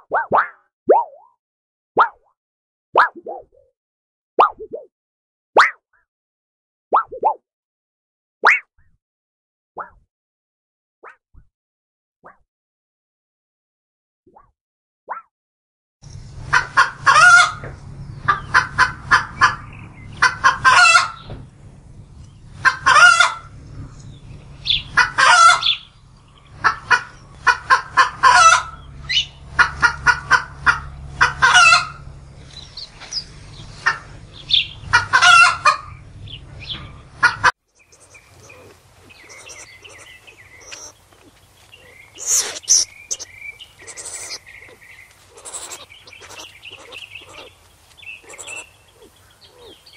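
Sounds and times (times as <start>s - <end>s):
chicken cackling: 16.3s - 21.4s, 22.2s - 49.9s.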